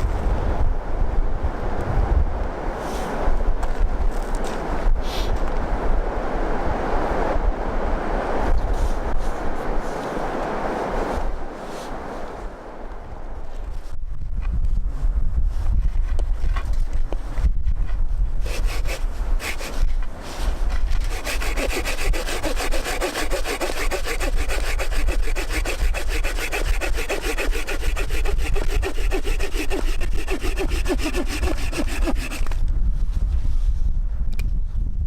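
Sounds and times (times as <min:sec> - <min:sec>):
wind rumble on microphone: 0:00.0 - 0:35.0
hand saw cutting wood: 0:18.4 - 0:32.6.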